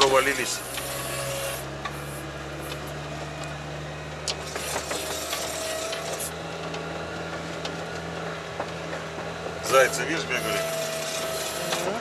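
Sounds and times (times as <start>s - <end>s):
vehicle engine running under load: 0.0s - 12.0s
vehicle body creaks and knocks: 4.2s - 9.8s.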